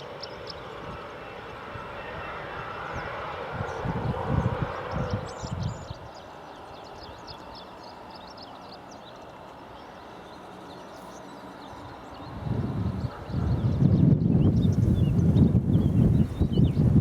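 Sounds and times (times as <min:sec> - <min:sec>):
small birds chirping: 0:00.0 - 0:17.0
wind buffeting microphone: 0:00.4 - 0:07.3, 0:11.6 - 0:17.0.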